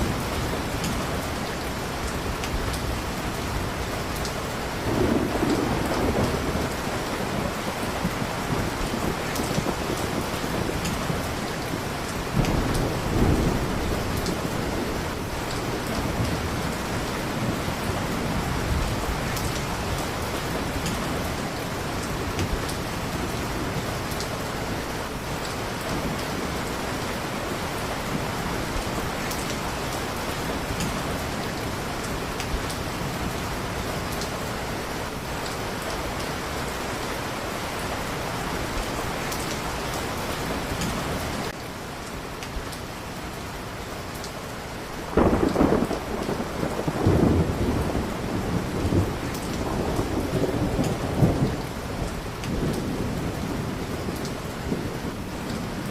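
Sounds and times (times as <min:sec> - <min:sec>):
heavy rain: 0:00.0 - 0:55.9
thunder rumble: 0:04.8 - 0:36.6, 0:45.1 - 0:55.9.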